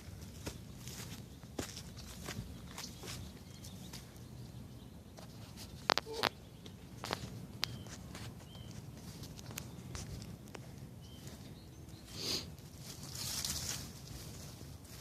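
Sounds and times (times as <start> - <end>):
faint footsteps: 0.0 - 4.3, 5.2 - 15.0
low outdoor rumble: 0.0 - 15.0.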